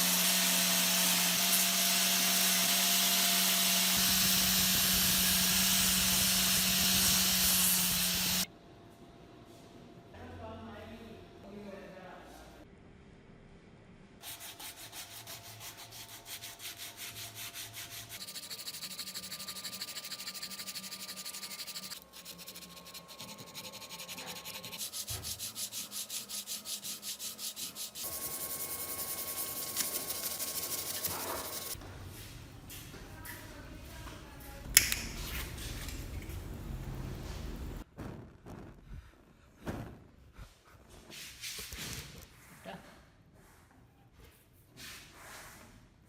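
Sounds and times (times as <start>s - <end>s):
hand sanding strokes: 0.0s - 8.5s, 14.2s - 31.8s.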